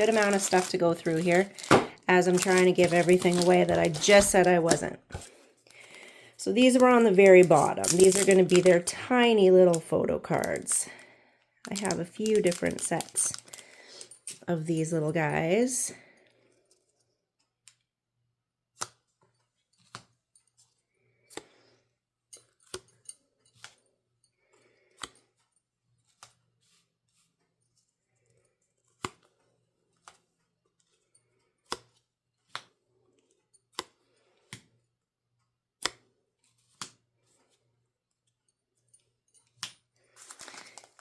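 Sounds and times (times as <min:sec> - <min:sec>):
soft rustles: 0:00.0 - 0:08.9, 0:40.1 - 0:41.0
cards clicking on a table: 0:31.7 - 0:32.8.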